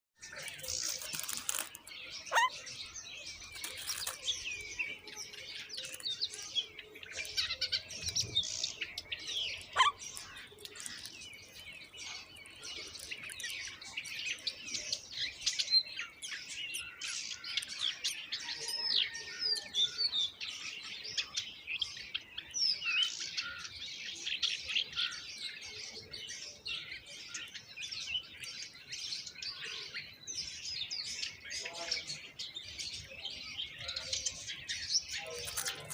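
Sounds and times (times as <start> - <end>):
baby birds chirping: 0.2 - 18.8, 33.6 - 35.9.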